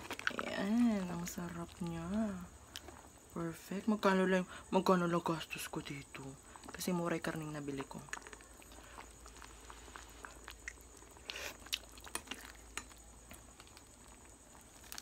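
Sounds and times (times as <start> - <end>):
mouth chewing clicks and smacks: 7.8 - 12.7.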